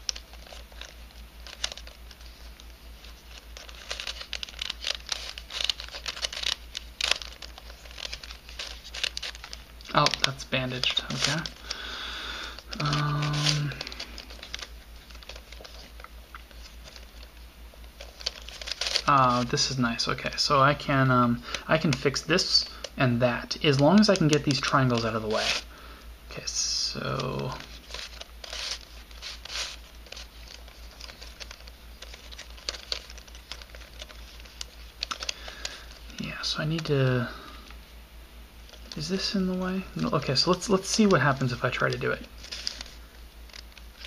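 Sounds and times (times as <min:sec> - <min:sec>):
puzzle cube clicking and rattling: 0:00.0 - 0:02.3, 0:03.0 - 0:11.8, 0:12.4 - 0:17.3, 0:17.9 - 0:19.5, 0:23.5 - 0:25.6, 0:26.9 - 0:36.9.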